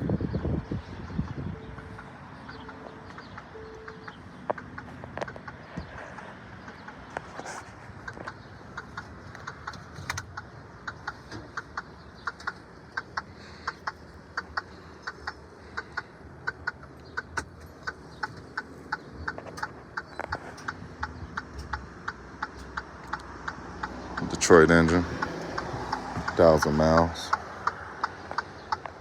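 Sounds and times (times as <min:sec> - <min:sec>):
ticking clicks: 0:01.6 - 0:05.6, 0:08.0 - 0:15.4, 0:16.4 - 0:24.4.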